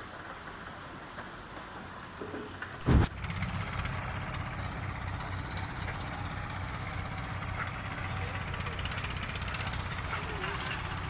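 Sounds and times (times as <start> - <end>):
low rumble: 2.8 - 3.8.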